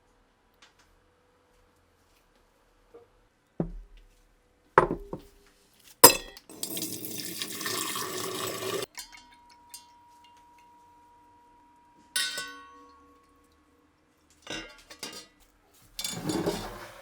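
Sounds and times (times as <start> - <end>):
running liquid splashing: 6.0 - 8.9.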